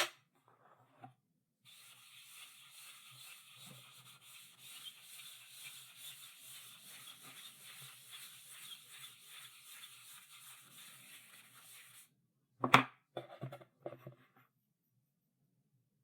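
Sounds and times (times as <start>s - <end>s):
chalk scratching on blackboard: 1.7s - 12.1s.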